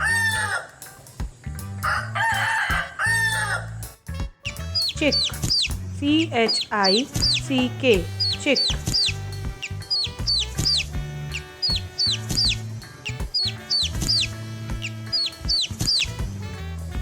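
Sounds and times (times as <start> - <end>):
background music with low bass: 0.0 - 17.0
chicks peeping: 4.5 - 16.7.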